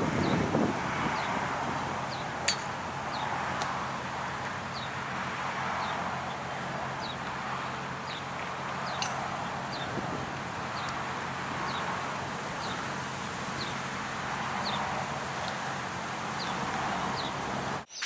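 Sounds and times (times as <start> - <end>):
small bird chirping: 17.2 - 18.0.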